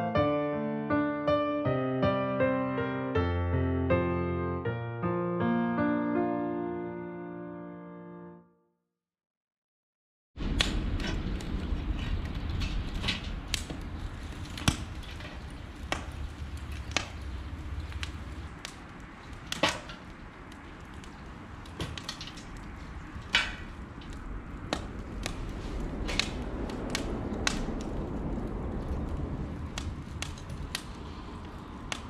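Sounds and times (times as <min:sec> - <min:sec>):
low steady rumble: 0:20.2 - 0:32.0.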